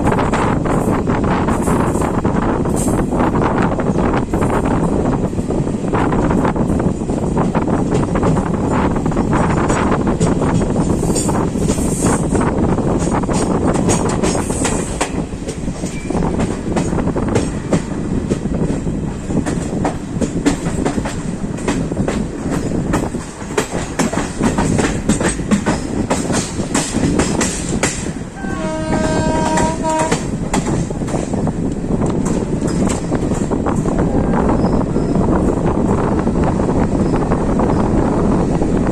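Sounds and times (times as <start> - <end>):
train wheels clicking on rails: 0.0 - 38.9
train horn: 28.3 - 30.4.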